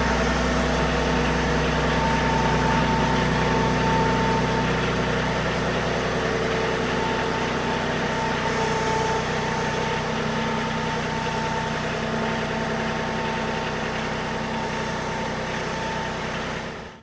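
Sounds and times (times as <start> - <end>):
machine engine idling: 0.0 - 15.5.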